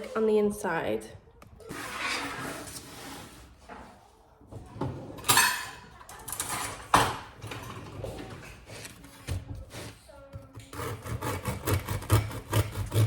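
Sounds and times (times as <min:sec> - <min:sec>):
knife cutting bread crust: 0:10.7 - 0:13.0.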